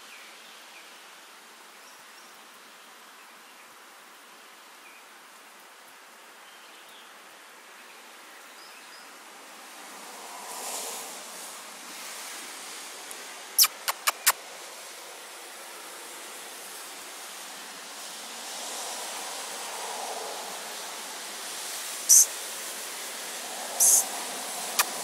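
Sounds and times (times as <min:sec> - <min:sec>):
rain falling: 0:00.0 - 0:25.0
sharp clicks: 0:13.6 - 0:14.4, 0:23.8 - 0:24.0, 0:24.8 - 0:25.0.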